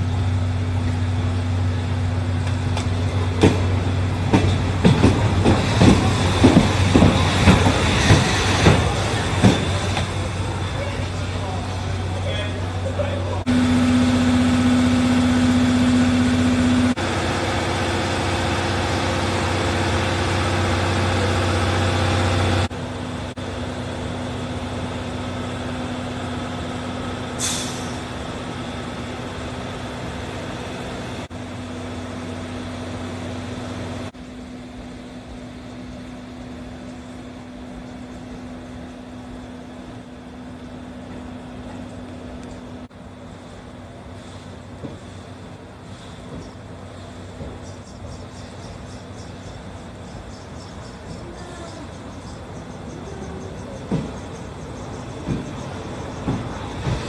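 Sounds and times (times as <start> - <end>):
steam locomotive hum and hiss: 0.0 - 57.0
short steam hiss: 27.4 - 28.0.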